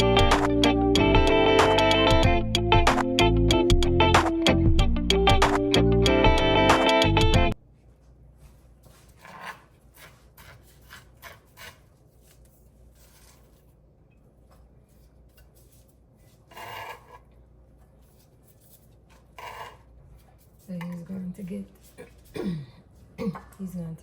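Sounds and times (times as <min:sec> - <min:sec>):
guitar music: 0:00.0 - 0:07.6
kitchen scrapes and clicks: 0:09.0 - 0:13.7, 0:14.9 - 0:17.3, 0:18.0 - 0:21.1.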